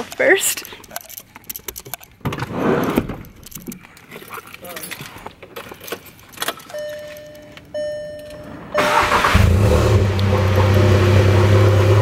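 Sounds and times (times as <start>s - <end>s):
clicks and rustling: 0.0s - 8.4s
dashboard chime tones: 6.7s - 8.9s
car engine starting and idling: 6.7s - 12.0s.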